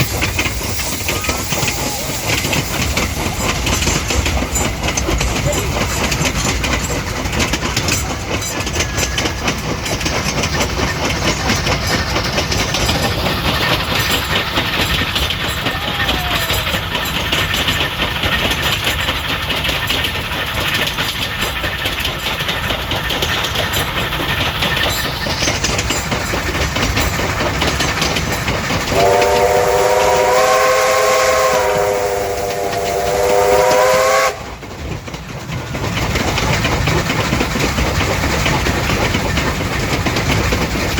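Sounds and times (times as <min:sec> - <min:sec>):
train wheels clattering: 0:00.0 - 0:40.9
locomotive whistle chord: 0:28.9 - 0:34.6.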